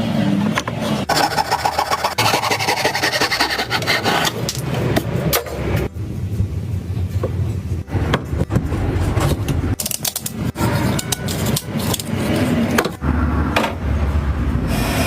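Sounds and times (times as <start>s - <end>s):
wood scraping and rubbing: 0.6s - 4.6s.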